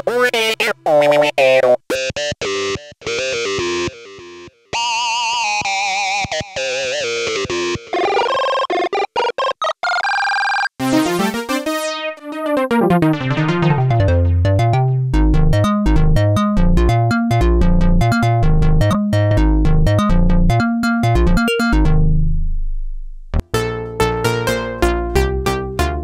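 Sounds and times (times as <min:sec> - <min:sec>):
synthesizer notes: 0:10.9 - 0:22.2
heavy synth bass: 0:13.1 - 0:24.8.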